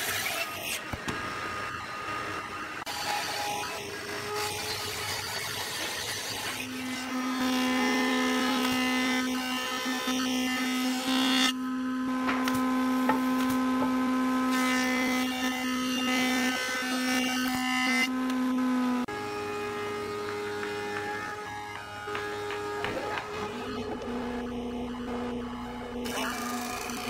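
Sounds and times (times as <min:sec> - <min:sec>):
saw cutting wood: 0:02.8 - 0:27.0
machine hum with high whine: 0:18.1 - 0:27.0.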